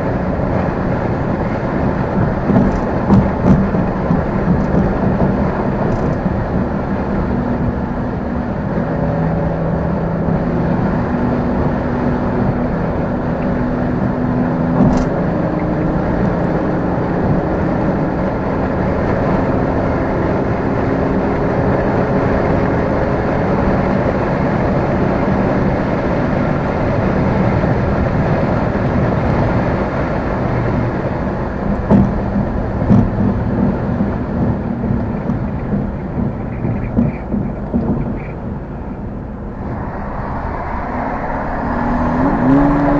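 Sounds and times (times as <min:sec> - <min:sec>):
car engine and road noise: 0:00.0 - 0:42.9
thumps: 0:02.0 - 0:07.0, 0:31.6 - 0:39.2.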